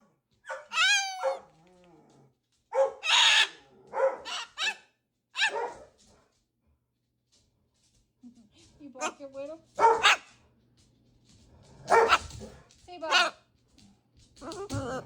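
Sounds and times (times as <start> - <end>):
dog barking and yelping: 0.4 - 1.6, 2.7 - 5.9, 9.8 - 10.4, 11.8 - 13.4, 14.4 - 15.0.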